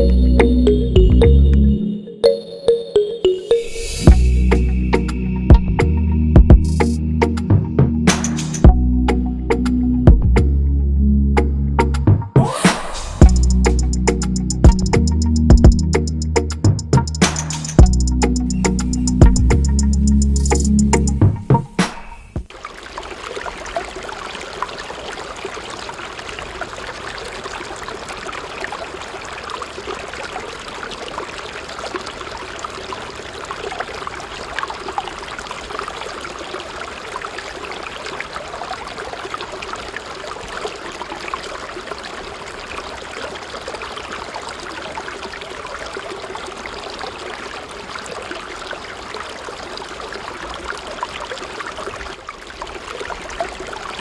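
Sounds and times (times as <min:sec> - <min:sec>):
water pouring and trickling: 0:00.0 - 0:01.6, 0:12.8 - 0:54.0.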